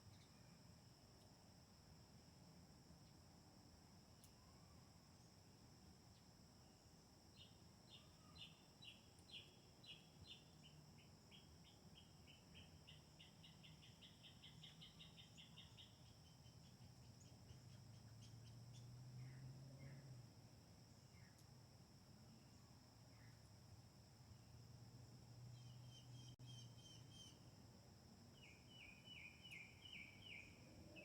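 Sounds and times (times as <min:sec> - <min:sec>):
bird chirping: 0:07.4 - 0:20.0, 0:25.5 - 0:27.5, 0:28.4 - 0:31.0.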